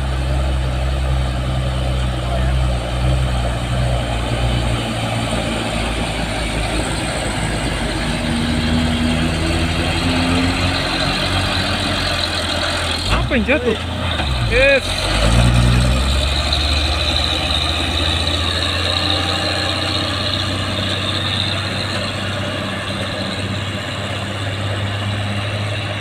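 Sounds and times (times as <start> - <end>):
diesel truck engine rumbling: 0.0 - 26.0.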